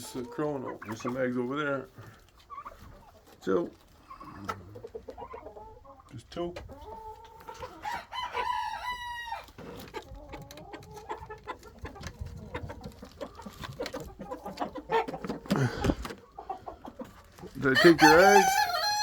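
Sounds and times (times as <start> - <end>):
hens clucking: 0.0 - 19.0
rooster crowing: 7.8 - 9.4, 17.8 - 19.0.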